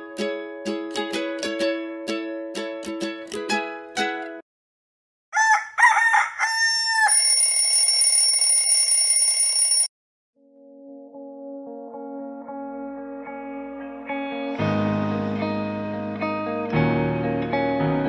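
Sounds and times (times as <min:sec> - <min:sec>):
ukulele music: 0:00.0 - 0:04.4
rooster crowing: 0:05.3 - 0:07.5
alarm clock ringing: 0:07.0 - 0:09.9.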